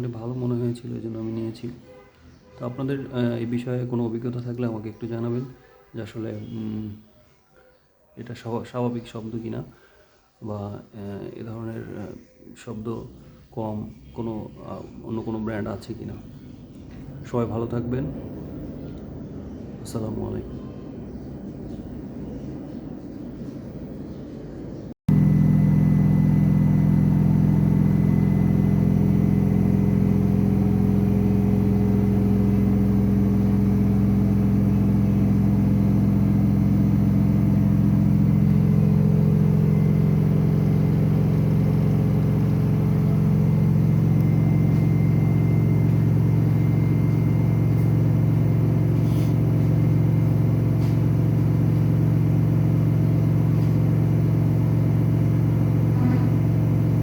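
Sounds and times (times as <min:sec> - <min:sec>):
washing machine drum spinning: 0:25.1 - 0:57.0.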